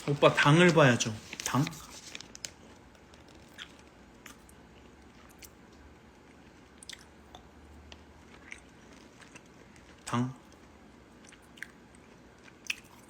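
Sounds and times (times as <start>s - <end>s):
chewing with mouth clicks: 2.6s - 10.6s, 11.2s - 13.0s.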